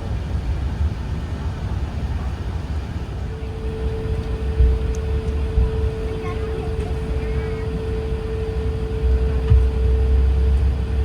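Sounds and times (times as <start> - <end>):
aircraft engines rumbling: 0.0 - 11.0
steady hum: 3.1 - 11.0.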